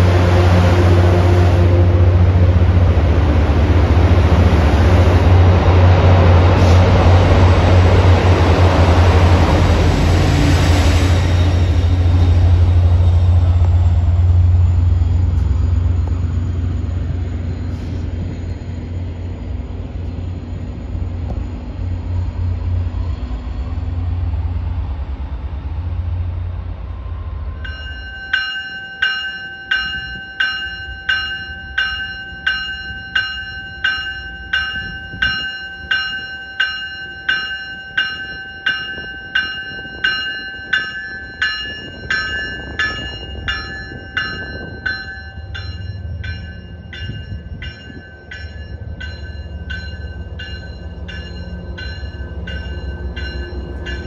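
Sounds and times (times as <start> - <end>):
diesel locomotive engine rumbling: 0.0 - 54.0
train bell ringing: 27.6 - 54.0.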